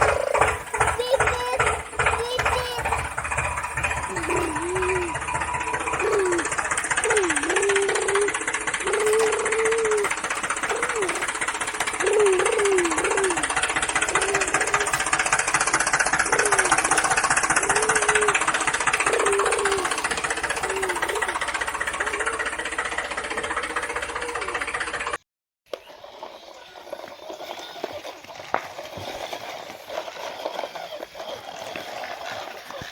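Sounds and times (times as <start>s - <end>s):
toy vehicle motor buzzing: 0.0s - 32.9s
short wavering pitched sounds: 1.0s - 25.1s.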